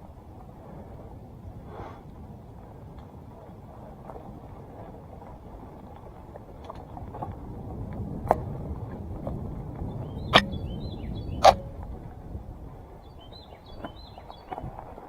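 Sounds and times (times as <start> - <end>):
bike tyre and frame rumble: 0.0 - 15.0
bird chirping: 9.9 - 11.8, 13.0 - 14.6.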